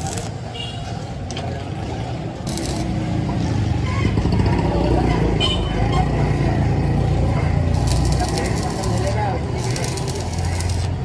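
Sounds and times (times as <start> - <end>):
machinery humming: 7.7 - 11.0.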